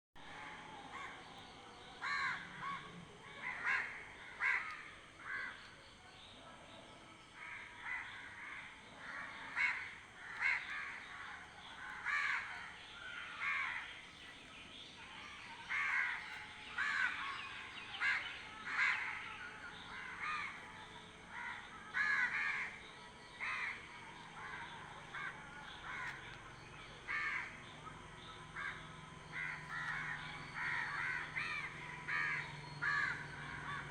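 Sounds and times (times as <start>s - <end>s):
birds harsh calls: 7.4s - 33.9s.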